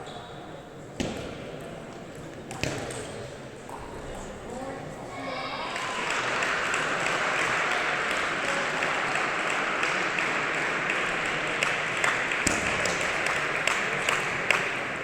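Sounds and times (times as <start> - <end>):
spectators applauding: 5.7 - 15.0.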